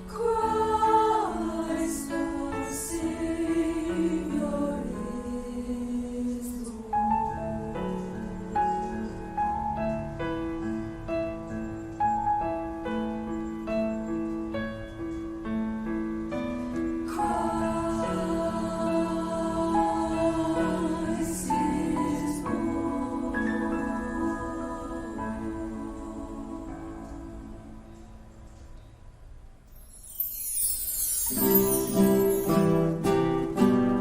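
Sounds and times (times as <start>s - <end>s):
choir singing: 0.0s - 8.9s, 17.0s - 28.2s, 30.1s - 33.1s
piano accompaniment: 0.0s - 28.5s, 29.7s - 34.0s.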